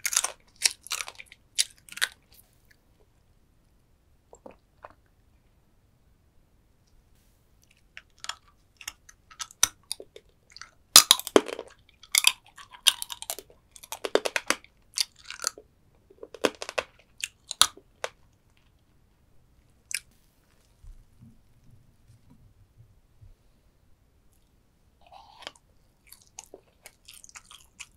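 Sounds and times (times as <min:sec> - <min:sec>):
crunching and chewing crab shell: 0:00.0 - 0:02.4, 0:07.7 - 0:18.8, 0:25.0 - 0:27.9.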